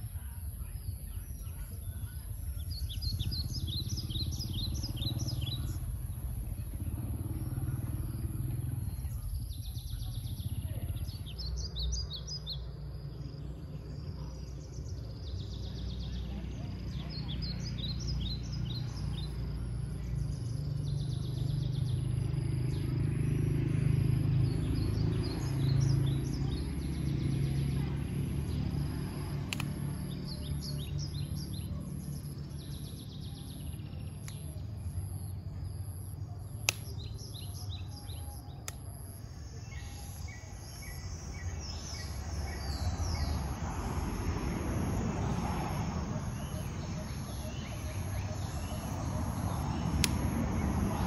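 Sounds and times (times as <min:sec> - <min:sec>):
steady low rumble: 0:00.0 - 0:23.4, 0:24.4 - 0:51.0
birds chirping: 0:00.0 - 0:51.0
sharp click: 0:29.5 - 0:29.8, 0:36.6 - 0:37.0, 0:49.9 - 0:50.3.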